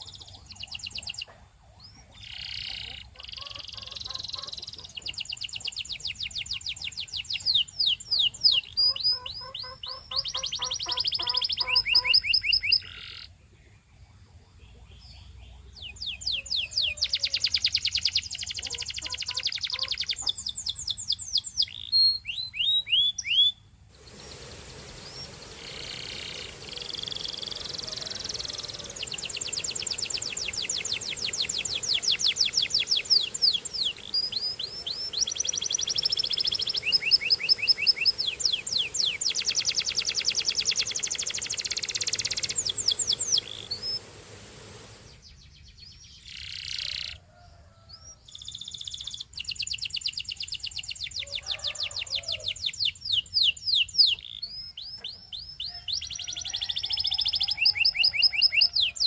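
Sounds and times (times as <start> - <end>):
canary singing trills: 0.0 - 44.1, 45.0 - 47.3, 47.9 - 59.0.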